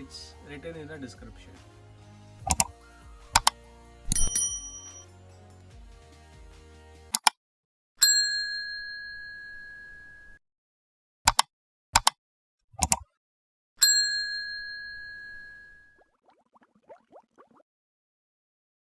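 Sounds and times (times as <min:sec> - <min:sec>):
bell ding: 0:04.1 - 0:05.1, 0:08.0 - 0:10.4, 0:13.8 - 0:15.8.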